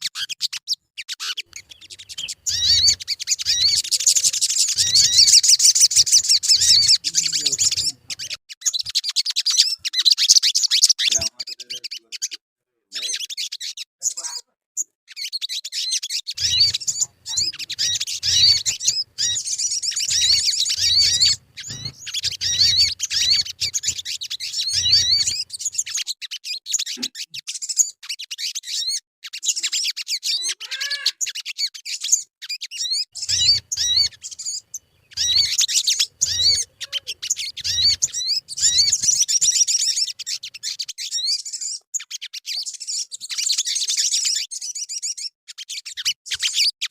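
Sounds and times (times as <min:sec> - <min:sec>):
bird chirping and twittering: 0:00.0 - 0:46.9.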